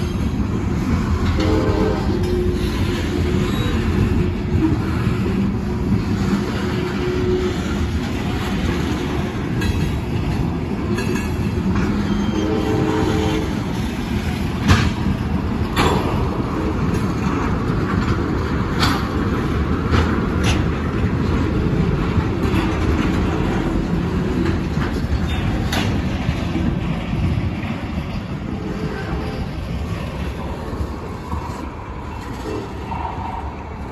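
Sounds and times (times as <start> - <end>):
train wheels rumbling on rails: 0.0 - 33.9
sharp rail clacks: 13.4 - 33.5.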